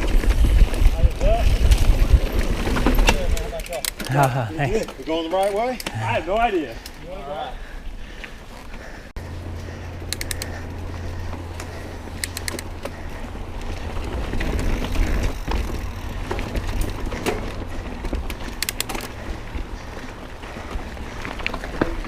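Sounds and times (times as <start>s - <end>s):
bike tyres rumbling on rocks: 0.0s - 5.4s, 10.8s - 22.0s
bike rattling: 0.0s - 22.0s
rapid clicks: 9.8s - 19.3s.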